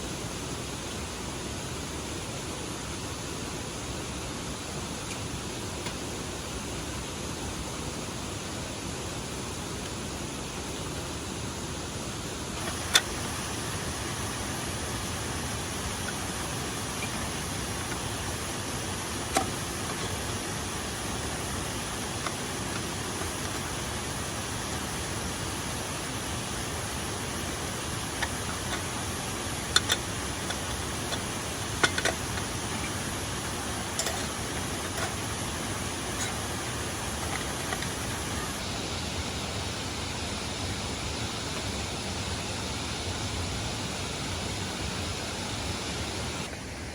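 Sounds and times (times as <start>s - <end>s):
waterfall rushing: 12.5s - 38.8s.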